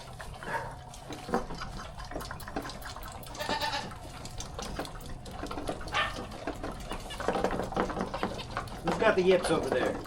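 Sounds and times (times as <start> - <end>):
baby goats bleating: 3.2 - 4.1.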